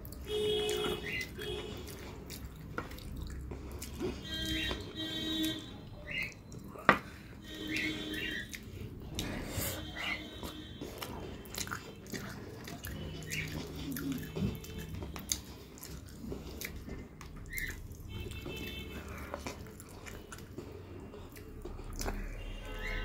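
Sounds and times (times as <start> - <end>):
wet mouth clicks and smacks: 0.0 - 5.6, 10.4 - 20.6, 21.3 - 22.3
person chewing food: 0.0 - 23.0.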